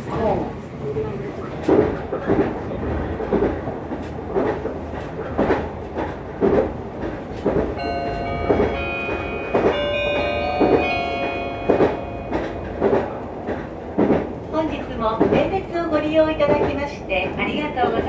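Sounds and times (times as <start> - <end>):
electric train running: 3.4 - 15.6.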